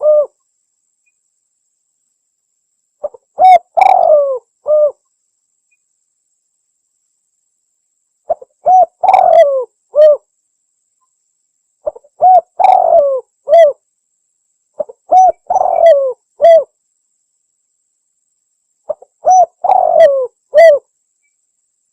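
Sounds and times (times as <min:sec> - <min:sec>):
dove cooing: 0:00.0 - 0:00.4, 0:03.0 - 0:05.0, 0:08.3 - 0:10.2, 0:11.8 - 0:13.8, 0:14.8 - 0:16.7, 0:18.9 - 0:20.9.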